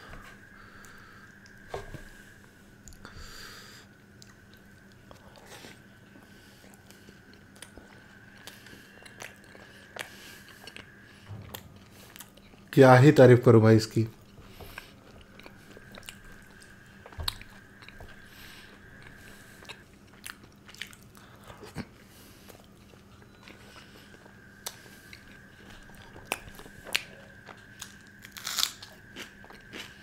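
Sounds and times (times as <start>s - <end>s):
wet chewing smacks: 6.2s - 12.7s, 14.1s - 28.2s.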